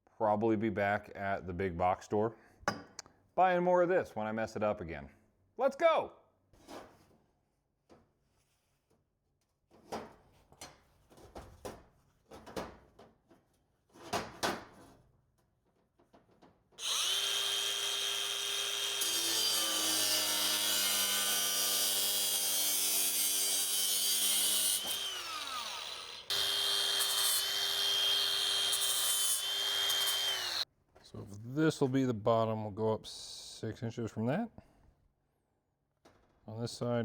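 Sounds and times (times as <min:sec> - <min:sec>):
power tool whining: 0:16.8 - 0:22.4, 0:23.3 - 0:30.6.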